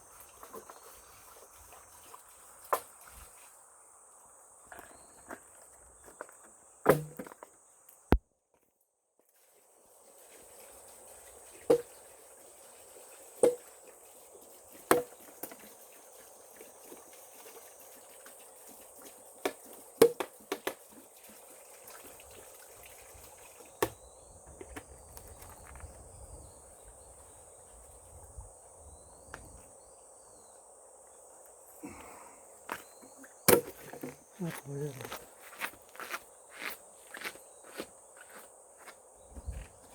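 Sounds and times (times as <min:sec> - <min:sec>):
sharp chopping strikes: 0:06.9 - 0:07.2, 0:33.5 - 0:33.8
high insect buzz: 0:23.7 - 0:39.9.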